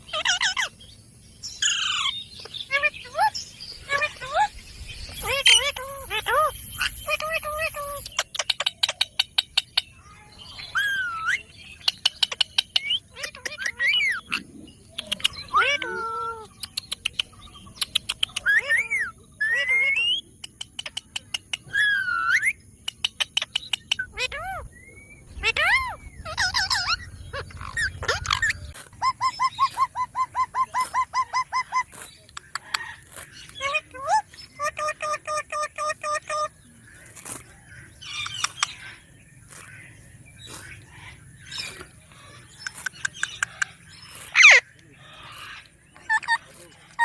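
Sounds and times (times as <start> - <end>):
parakeet gliding calls: 1.6 - 14.3, 25.3 - 47.0
parakeet sharp clicks: 16.6 - 18.6, 32.0 - 33.6, 38.1 - 38.9, 42.6 - 44.4
sharp clicks: 16.6 - 18.6, 38.2 - 38.8.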